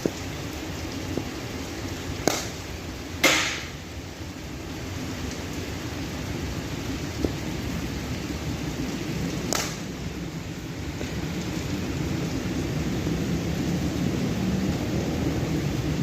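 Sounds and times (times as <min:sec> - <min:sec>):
heavy rain: 0:00.0 - 0:16.0
cricket bat striking ball: 0:02.2 - 0:02.6, 0:03.2 - 0:03.7.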